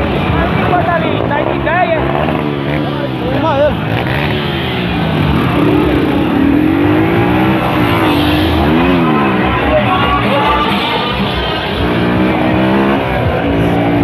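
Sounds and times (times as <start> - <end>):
vehicle engine revving: 0.0 - 14.0
background music: 5.4 - 14.0.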